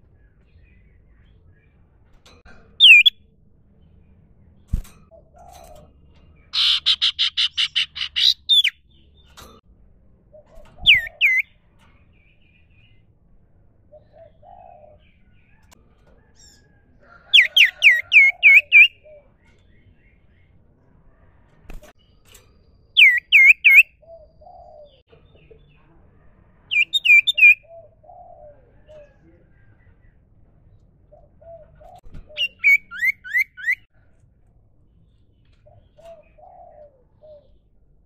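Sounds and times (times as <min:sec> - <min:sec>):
bird hooked whistles: 0:02.8 - 0:03.2, 0:10.8 - 0:11.5, 0:23.0 - 0:23.9, 0:32.3 - 0:33.9.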